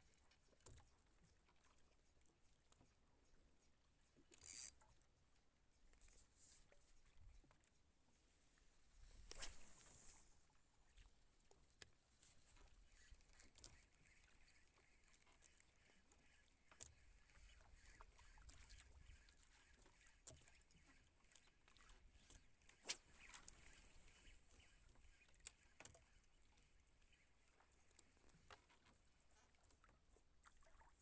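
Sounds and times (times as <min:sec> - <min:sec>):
faint water sounds: 0:00.0 - 0:31.0.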